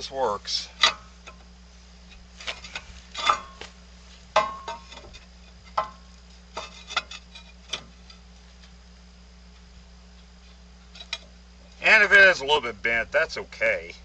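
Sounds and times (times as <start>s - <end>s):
low electrical hum: 0.0s - 14.0s
steel parts clanking: 2.1s - 3.6s, 4.3s - 8.2s.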